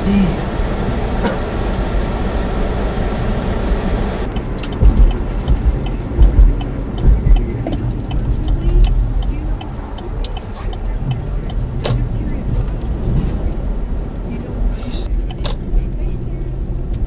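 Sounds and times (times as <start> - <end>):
car engine and tyre noise: 0.0 - 17.0
low thumps: 4.2 - 9.6.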